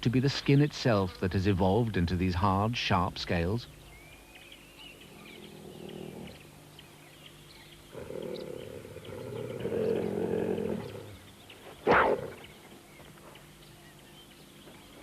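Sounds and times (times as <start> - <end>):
cheetah snarling: 5.0 - 6.6, 7.9 - 12.6
cheetah growling: 5.0 - 6.8, 7.8 - 12.6.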